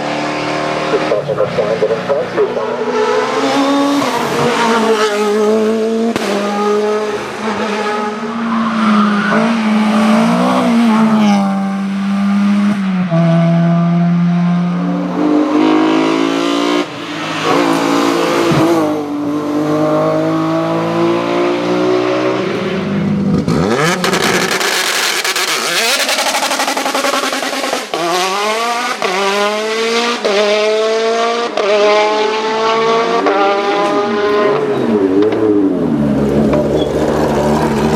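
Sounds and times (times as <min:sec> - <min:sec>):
race car engine shifting gears: 0:23.3 - 0:37.9.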